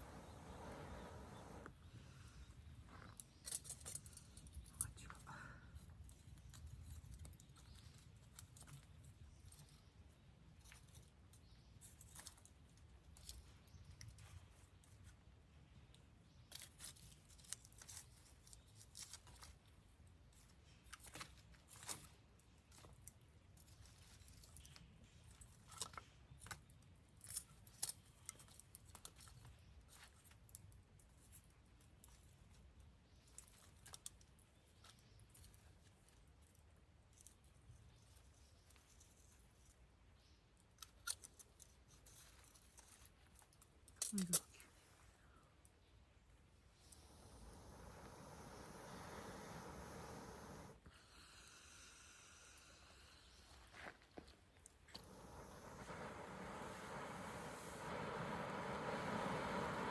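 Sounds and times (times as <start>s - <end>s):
campfire crackling and popping: 54.7s - 59.9s.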